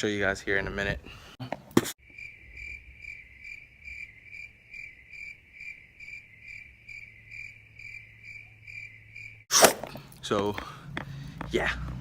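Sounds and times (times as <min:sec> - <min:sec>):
crickets chirping: 0:02.0 - 0:09.5.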